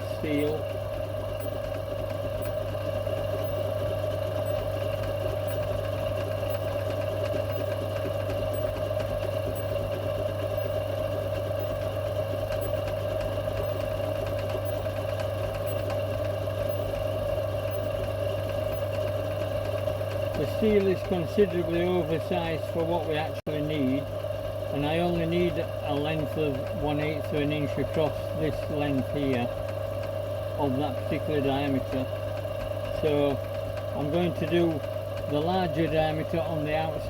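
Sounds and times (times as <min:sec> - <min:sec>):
metal lathe humming: 0:00.0 - 0:37.0.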